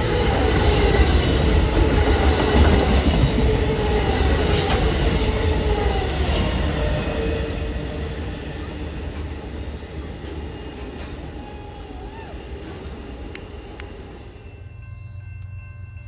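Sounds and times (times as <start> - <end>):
train rumbling on rails: 0.0 - 16.0
train wheels squealing: 0.0 - 16.0.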